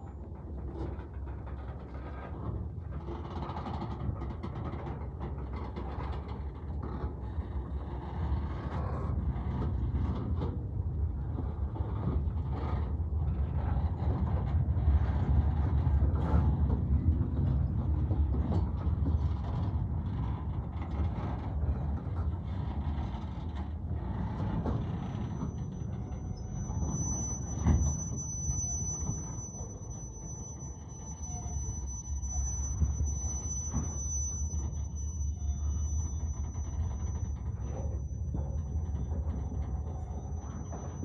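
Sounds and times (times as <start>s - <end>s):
freight train rumbling: 0.0s - 41.0s
wheel flange squeal: 11.5s - 41.0s.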